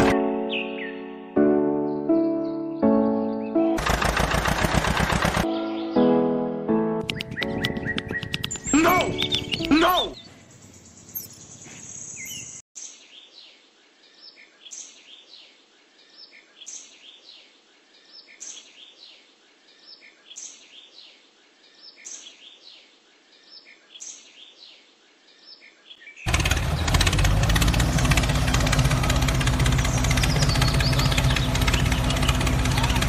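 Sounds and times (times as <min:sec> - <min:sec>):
bird chirps: 0:00.5 - 0:01.1, 0:05.5 - 0:06.1, 0:07.0 - 0:22.8, 0:29.6 - 0:33.0
loud steady engine running: 0:03.8 - 0:05.5, 0:26.3 - 0:33.0.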